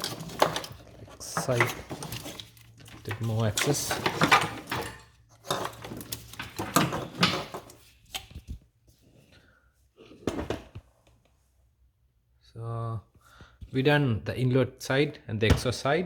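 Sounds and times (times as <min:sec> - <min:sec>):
metal tools and engine parts clinking: 0:00.0 - 0:07.8.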